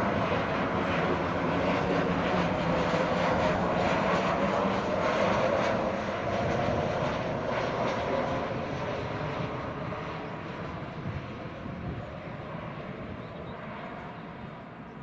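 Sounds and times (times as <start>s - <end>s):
airliner engines running: 0.0s - 15.0s.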